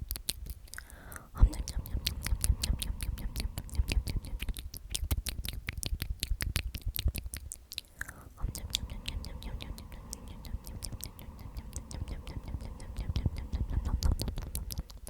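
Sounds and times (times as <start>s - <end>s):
wet mouth clicks and lip smacks: 0.0s - 15.0s
person whispering: 0.8s - 4.9s, 7.8s - 15.0s.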